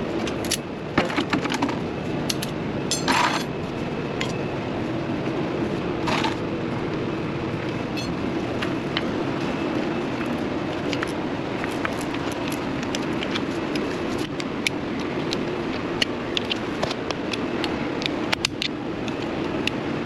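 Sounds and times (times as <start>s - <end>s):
steady low hum: 0.0s - 20.0s
metallic clinks of hand tools: 2.9s - 3.5s.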